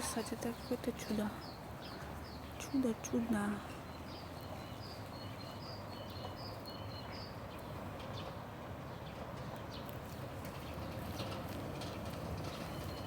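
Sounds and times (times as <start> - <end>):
small bird chirping: 0.0 - 8.4.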